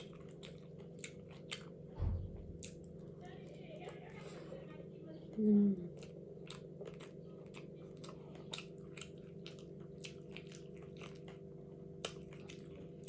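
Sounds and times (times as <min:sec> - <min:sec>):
person chewing crunchy food: 0:00.0 - 0:04.4, 0:05.9 - 0:13.0
steady low hum: 0:00.0 - 0:13.0.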